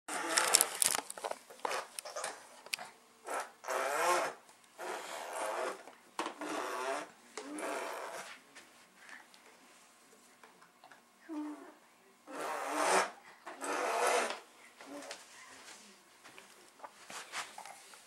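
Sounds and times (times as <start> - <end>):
baby blowing buzzing raspberries: 0.1 - 1.0, 3.2 - 8.3, 12.3 - 14.5.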